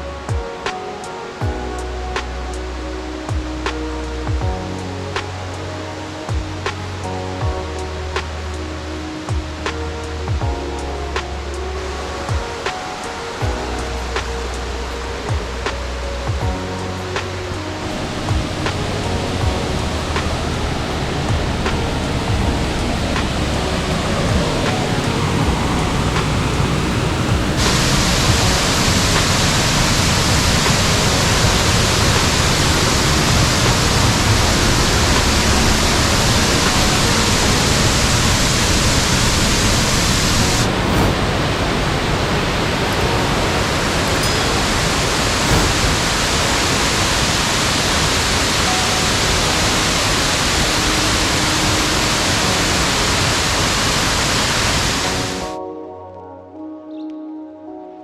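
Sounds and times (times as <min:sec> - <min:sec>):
music: 0:00.0 - 0:58.0
falling water rushing: 0:10.9 - 0:55.6.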